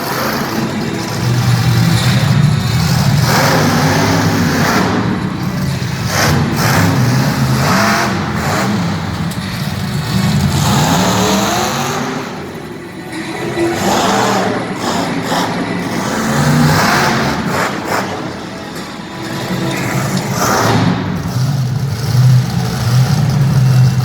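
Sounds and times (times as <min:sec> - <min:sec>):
truck engine revving hard: 0:00.0 - 0:24.0.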